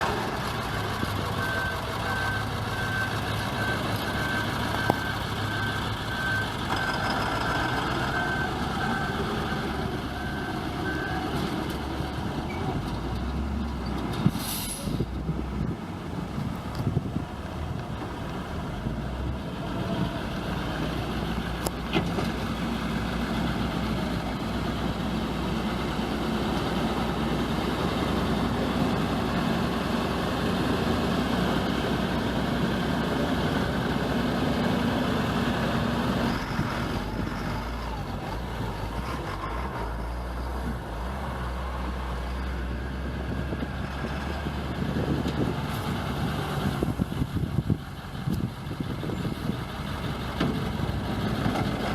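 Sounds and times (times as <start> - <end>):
diesel truck engine idling: 0.0 - 13.1.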